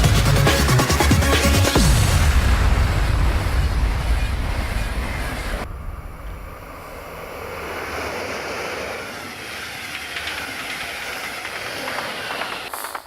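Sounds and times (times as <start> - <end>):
train wheels rumbling on rails: 1.8 - 13.0
wheels clicking over track: 7.7 - 13.0.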